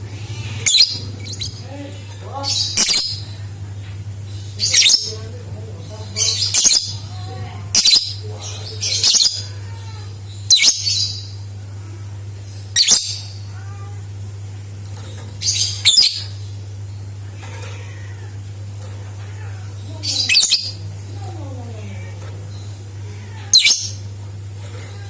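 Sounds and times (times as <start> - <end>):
steady low hum: 0.0 - 25.0
lovebird shrill chattering calls: 2.5 - 3.3, 4.6 - 5.1, 15.4 - 16.3, 20.1 - 20.8, 23.6 - 24.0.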